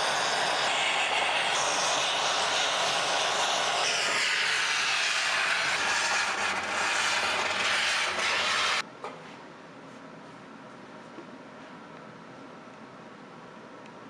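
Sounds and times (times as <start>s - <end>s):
loud steady hiss: 0.0s - 8.8s.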